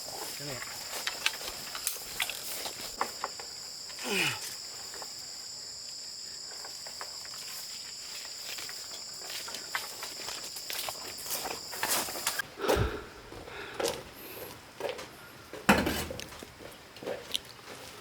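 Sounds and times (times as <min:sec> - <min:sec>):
insects shrilling: 0:00.0 - 0:12.4
short falling cry: 0:04.0 - 0:04.5.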